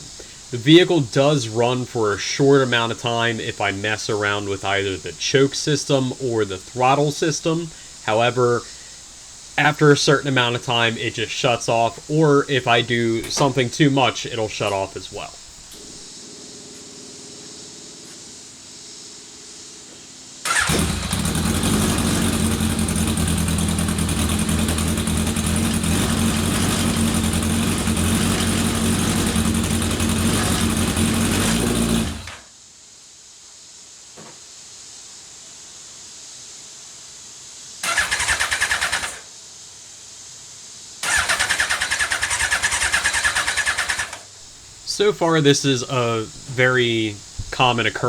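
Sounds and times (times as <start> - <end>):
car engine starting and running: 20.5 - 32.4.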